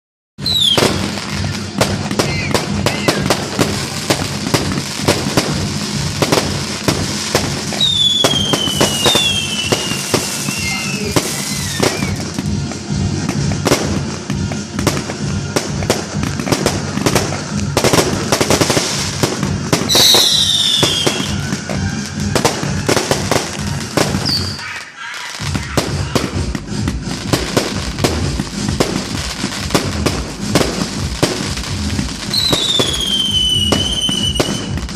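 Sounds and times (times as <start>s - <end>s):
whistling firework shells: 0.4s - 6.5s, 7.4s - 12.4s, 19.2s - 26.2s, 32.3s - 34.9s
fireworks bangs and crackling: 0.4s - 34.9s.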